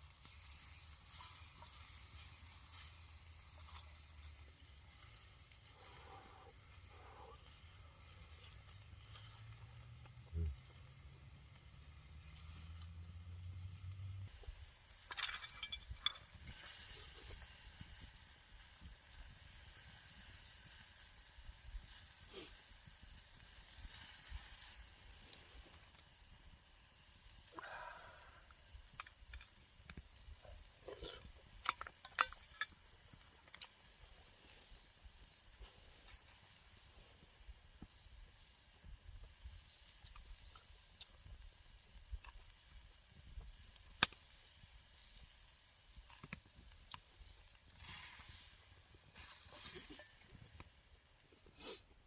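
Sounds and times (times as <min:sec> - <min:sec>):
campfire hissing and crackling: 0:00.0 - 0:52.0
fire pops: 0:13.5 - 0:51.8.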